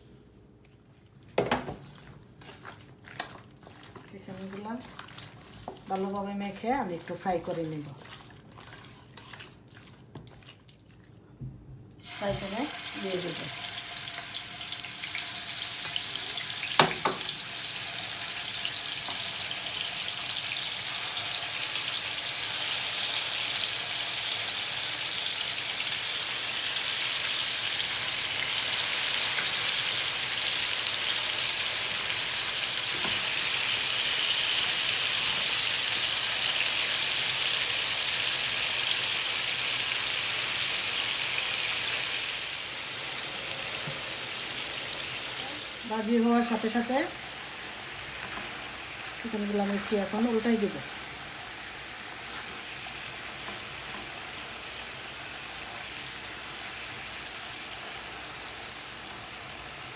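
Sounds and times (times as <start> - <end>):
chicken frying in hot oil: 1.4 - 8.0, 12.0 - 59.9.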